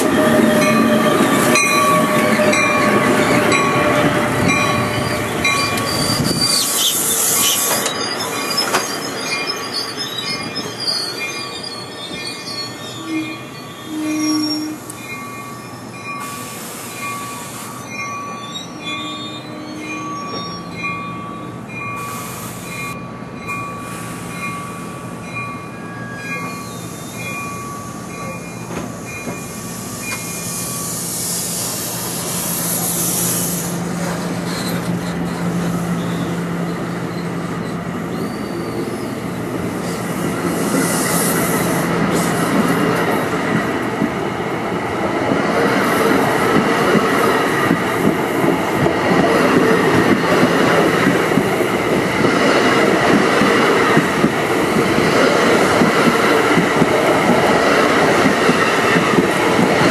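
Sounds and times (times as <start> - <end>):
high wheel squeal: 0.0 - 14.9, 15.7 - 20.8, 25.8 - 42.6
train cars rolling: 0.0 - 59.9.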